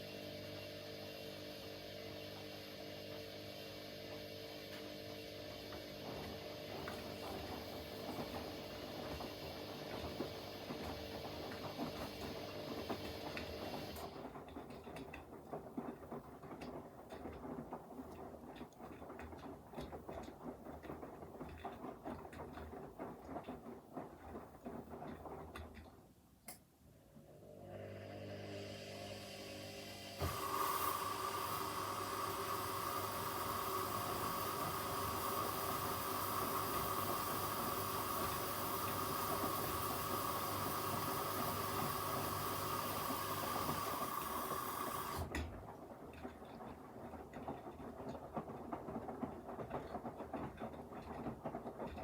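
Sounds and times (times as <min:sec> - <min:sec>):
washing machine motor hum: 0:00.0 - 0:52.0
tumbling drum patter and clicking: 0:06.8 - 0:26.0, 0:45.3 - 0:52.0.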